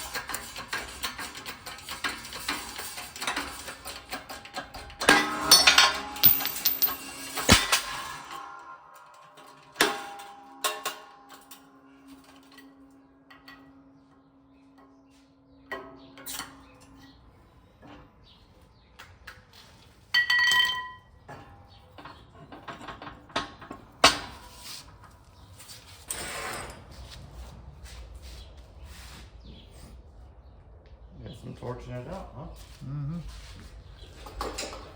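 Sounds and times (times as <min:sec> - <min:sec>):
metal tools knocking and clinking: 0:03.2 - 0:07.8, 0:20.2 - 0:21.0
ringing metallic strike: 0:05.6 - 0:14.4.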